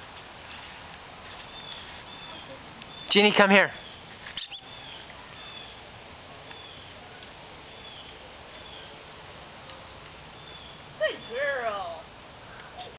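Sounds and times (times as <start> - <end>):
steady outdoor background noise: 0.0 - 12.9
faint short bird chirps: 4.4 - 4.8.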